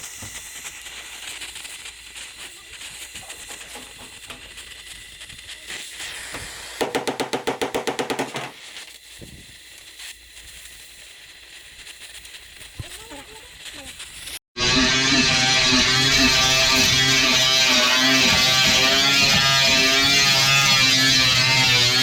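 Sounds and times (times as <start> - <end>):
steady hiss: 0.0 - 14.4.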